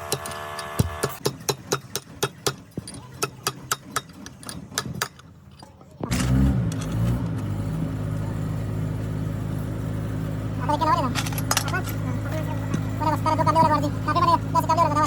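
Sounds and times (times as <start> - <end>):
bulldozer diesel engine idling: 7.6 - 15.0.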